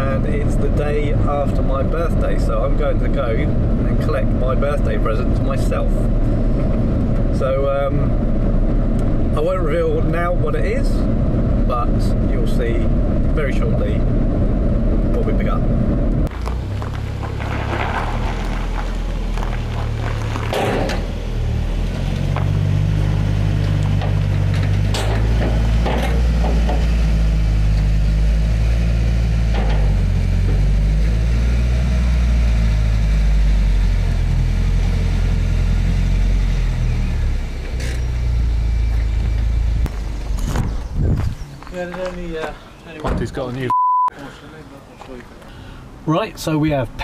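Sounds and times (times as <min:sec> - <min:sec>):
car engine running: 0:00.0 - 0:42.4
short knocks and clanks: 0:20.4 - 0:21.2, 0:23.6 - 0:27.0, 0:29.4 - 0:30.6.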